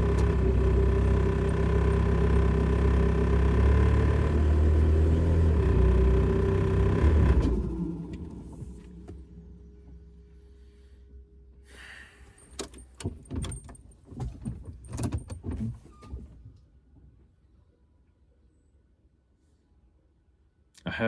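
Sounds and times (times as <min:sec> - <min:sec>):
diesel engine dying away: 0:00.0 - 0:10.2.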